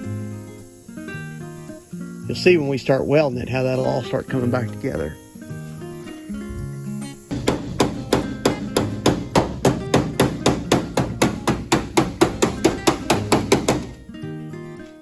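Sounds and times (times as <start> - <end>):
hammer striking sheet metal: 7.3 - 14.0.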